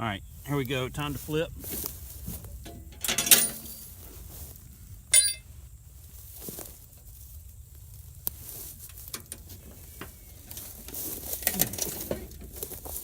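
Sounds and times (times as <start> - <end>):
mower handling clicks and knocks: 1.8 - 3.9, 8.8 - 13.0.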